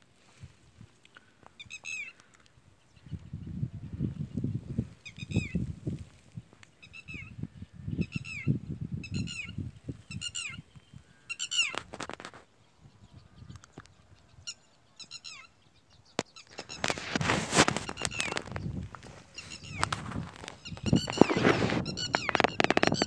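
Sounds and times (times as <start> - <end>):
footsteps and microphone handling: 11.5 - 12.5, 16.2 - 23.0
loud noise burst on microphone: 16.6 - 23.0.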